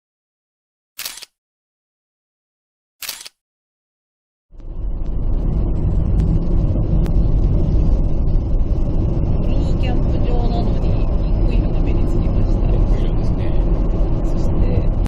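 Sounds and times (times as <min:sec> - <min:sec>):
loud low rumble: 0:04.5 - 0:15.0.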